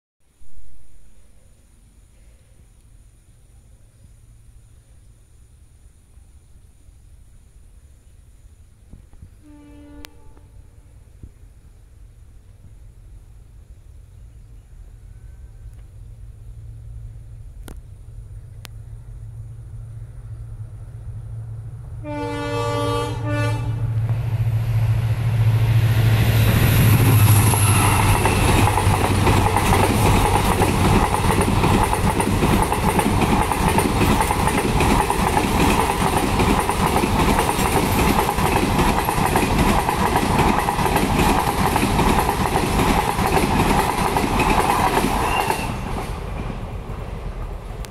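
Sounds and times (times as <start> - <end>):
diesel locomotive engine rumble: 1.0 - 47.9
locomotive horn: 9.4 - 11.0, 22.0 - 24.0
train wheels clattering over rails: 26.0 - 46.8.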